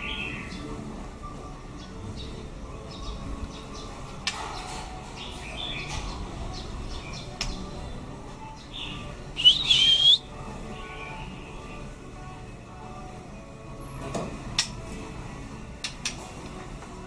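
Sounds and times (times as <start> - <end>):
bird chirping and whistling: 8.6 - 10.3.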